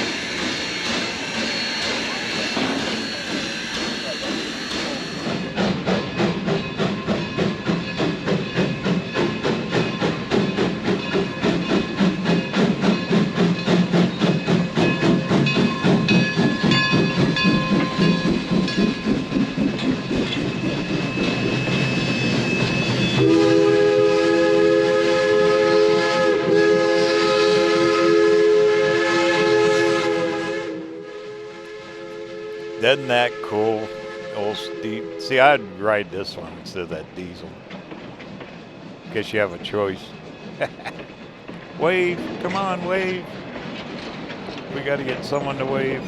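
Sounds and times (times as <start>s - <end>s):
steam chime whistle blast: 0.0s - 5.4s, 21.2s - 35.9s
steam locomotive chuffing: 0.0s - 46.0s.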